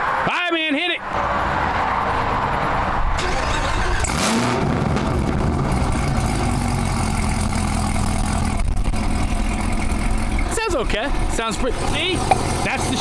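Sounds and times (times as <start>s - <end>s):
car engine starting and revving: 3.0s - 13.0s
car engine idling: 4.8s - 13.0s.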